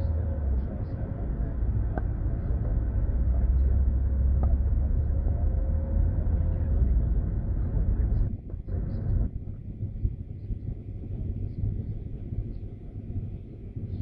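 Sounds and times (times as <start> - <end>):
car cabin engine and road rumble: 0.0 - 14.0.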